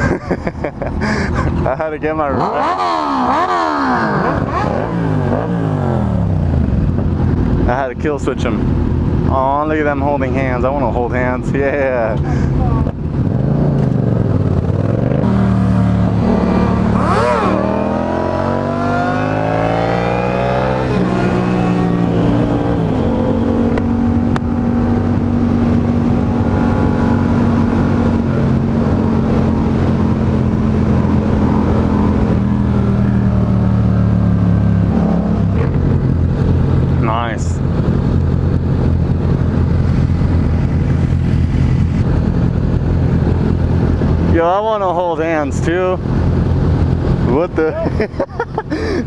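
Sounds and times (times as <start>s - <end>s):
motorcycle engine accelerating: 1.0s - 7.8s, 12.8s - 44.3s.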